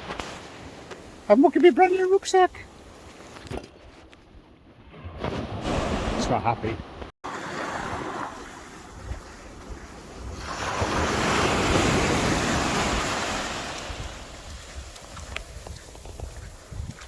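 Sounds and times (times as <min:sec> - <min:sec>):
steady wash of sea: 0:04.9 - 0:17.0
wave surging onto shore: 0:05.6 - 0:14.8
wind buffeting microphone: 0:07.8 - 0:17.0.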